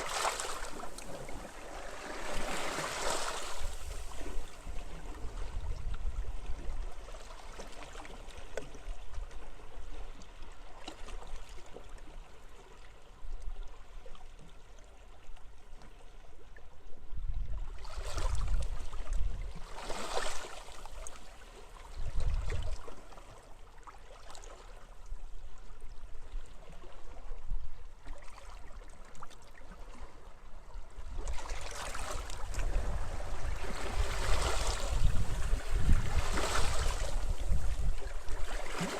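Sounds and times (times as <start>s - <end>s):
waves washing onto beach: 0.0s - 5.3s, 31.4s - 38.9s
low wind rumble: 32.4s - 38.4s.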